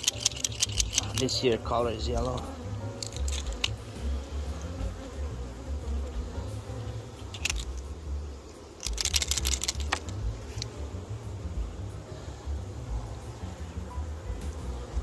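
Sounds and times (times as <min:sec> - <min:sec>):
sharp clicks and rattles: 0:00.0 - 0:01.4, 0:02.2 - 0:03.8, 0:07.3 - 0:07.9, 0:08.8 - 0:10.8
honeybees buzzing: 0:00.0 - 0:15.0.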